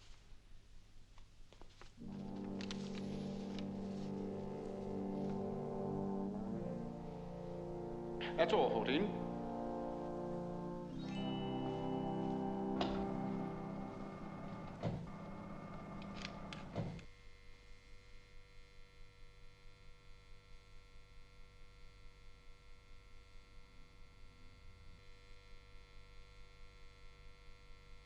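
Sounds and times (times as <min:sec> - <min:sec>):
orchestral music: 0:02.0 - 0:16.8
low hum: 0:02.0 - 0:17.0
faint mechanical pulsing: 0:09.1 - 0:17.1.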